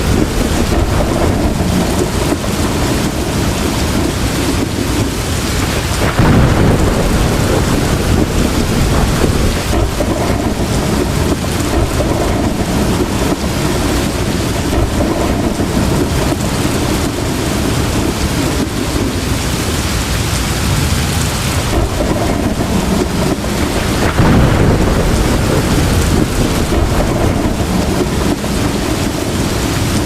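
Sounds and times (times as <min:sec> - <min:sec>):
heavy rain falling: 0:00.0 - 0:30.0
low rumble of thunder: 0:00.0 - 0:30.0.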